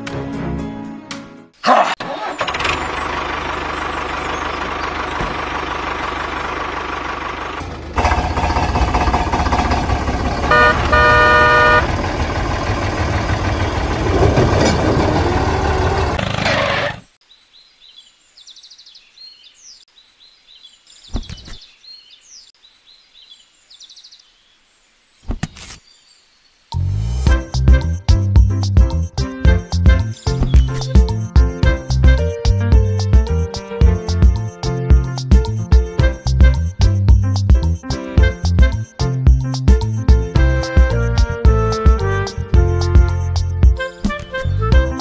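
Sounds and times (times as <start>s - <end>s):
tractor engine running: 2.0s - 17.0s
birds chirping: 2.2s - 5.7s, 17.2s - 25.1s, 30.0s - 31.2s
horn honking: 8.0s - 16.2s, 40.4s - 45.0s.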